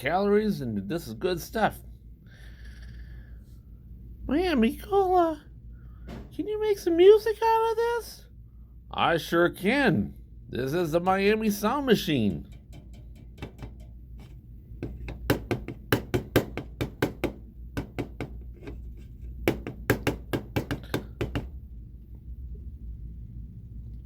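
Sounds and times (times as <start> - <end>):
knocking beat: 12.2 - 14.0, 14.8 - 18.4.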